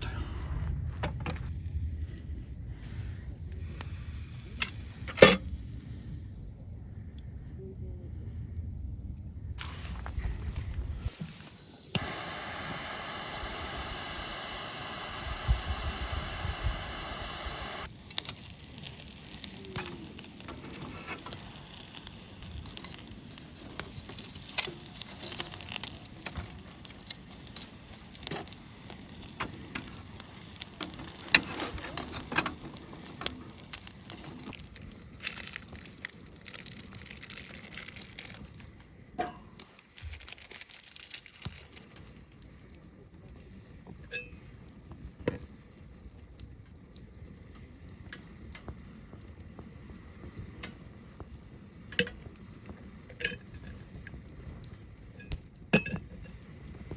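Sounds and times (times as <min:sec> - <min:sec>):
steady hiss: 0:00.0 - 0:56.9
wood cracking and snapping: 0:39.6 - 0:41.9.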